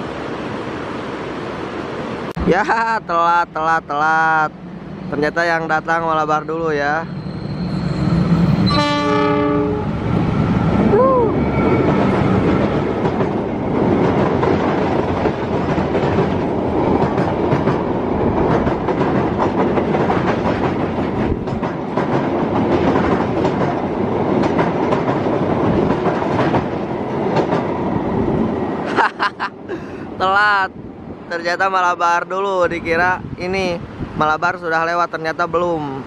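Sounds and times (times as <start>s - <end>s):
diesel train passing: 0.0s - 36.0s
wheels clicking over rail joints: 11.9s - 27.8s.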